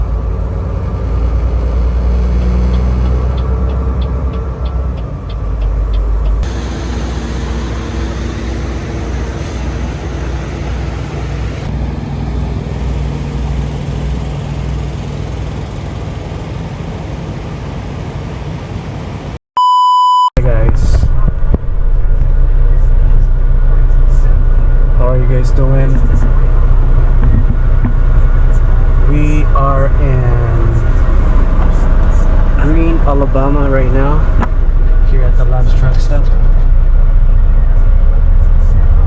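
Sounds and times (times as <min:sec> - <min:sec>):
road noise: 0:00.0 - 0:19.4, 0:21.1 - 0:39.0
truck engine drone: 0:00.0 - 0:19.4, 0:21.1 - 0:39.0
short electronic beep: 0:19.6 - 0:20.3.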